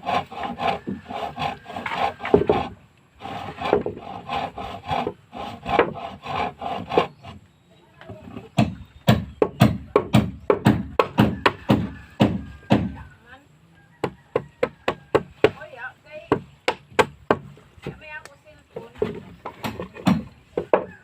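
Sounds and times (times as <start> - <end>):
hand saw cutting wood: 0.0 - 7.5
hard knocks on wood: 8.5 - 13.0, 16.2 - 18.0.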